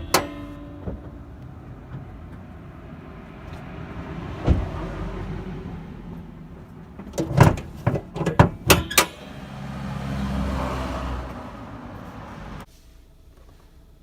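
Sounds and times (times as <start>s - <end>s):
sharp knocks in a car: 0.0s - 2.4s
vehicle running noise: 0.0s - 14.0s.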